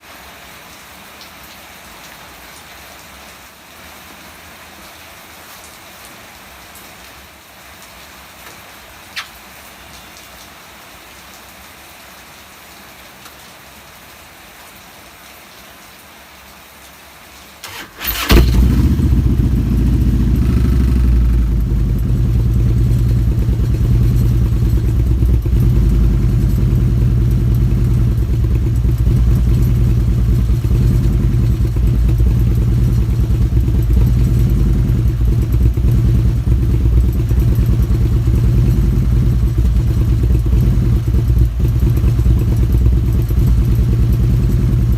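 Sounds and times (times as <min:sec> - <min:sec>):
rain hiss: 0:00.0 - 0:44.9
starter motor cranking: 0:17.7 - 0:19.6
motorcycle engine idling: 0:17.7 - 0:44.9.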